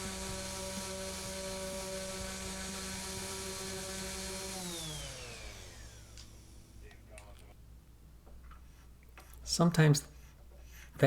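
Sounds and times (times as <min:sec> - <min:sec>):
orbital sander whining: 0:00.0 - 0:06.8.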